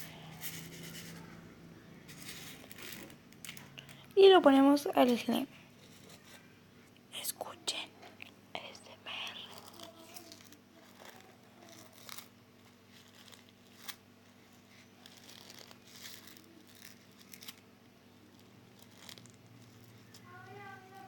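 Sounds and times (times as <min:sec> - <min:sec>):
slime crackling and popping: 0:09.5 - 0:12.3, 0:15.0 - 0:20.2.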